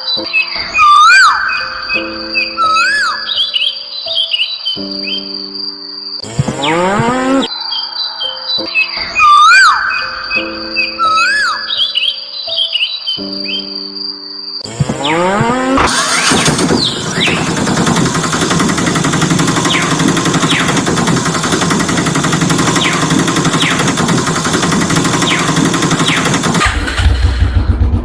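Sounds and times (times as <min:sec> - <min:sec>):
music: 0:00.0 - 0:28.0
engine starting with rising whine: 0:06.2 - 0:07.5, 0:14.6 - 0:28.0.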